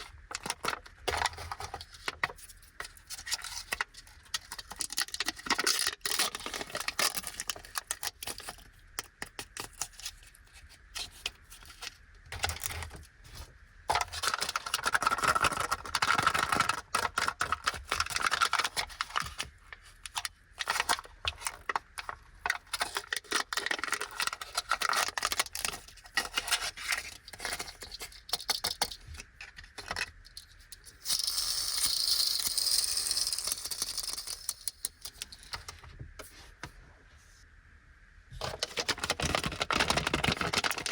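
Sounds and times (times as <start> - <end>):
packaging crinkling and tearing: 0.0 - 10.0, 13.9 - 29.0, 38.4 - 40.9
plastic pieces clicking and rattling: 0.2 - 9.9, 13.9 - 19.5, 20.1 - 35.8, 38.5 - 40.9.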